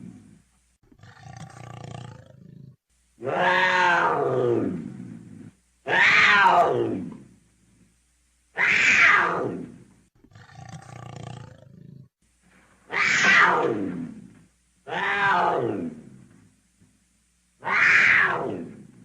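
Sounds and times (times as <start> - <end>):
puma crying: 3.2 - 4.7, 5.9 - 7.2, 8.6 - 9.6, 12.9 - 13.8, 14.9 - 15.9, 17.6 - 18.8.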